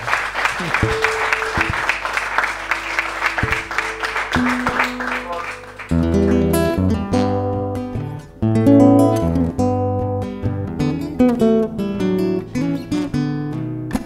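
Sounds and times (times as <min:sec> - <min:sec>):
audience applause: 0:00.0 - 0:06.8
acoustic guitar notes: 0:00.6 - 0:14.0
acoustic guitar strumming chords: 0:00.8 - 0:14.0.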